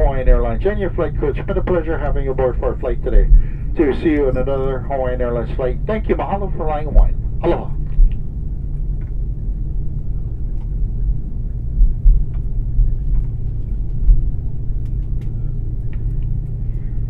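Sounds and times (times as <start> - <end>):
airplane cabin rumble taxiing: 0.0 - 17.0.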